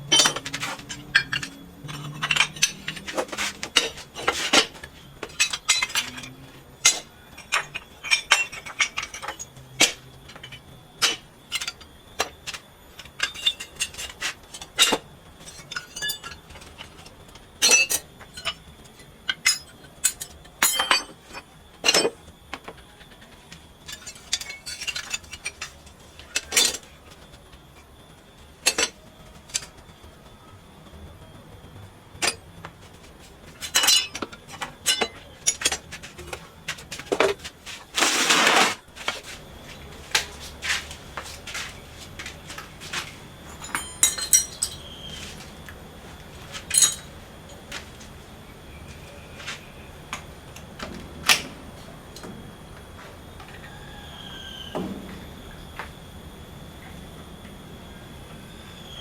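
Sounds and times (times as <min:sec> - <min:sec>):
metal pieces clinking: 0:00.1 - 0:11.8, 0:19.4 - 0:22.1, 0:23.9 - 0:26.8, 0:33.5 - 0:36.4, 0:43.0 - 0:45.4, 0:46.5 - 0:47.6.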